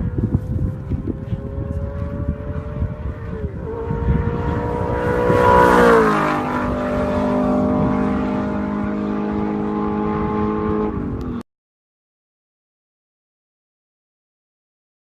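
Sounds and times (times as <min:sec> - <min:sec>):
vehicle engine passing by: 0:00.0 - 0:11.4.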